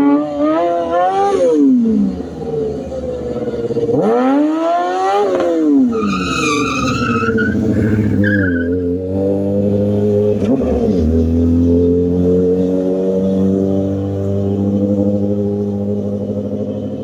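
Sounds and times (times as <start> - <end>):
motorcycle engine revving: 0.0 - 17.0
tyre squealing: 5.3 - 9.0.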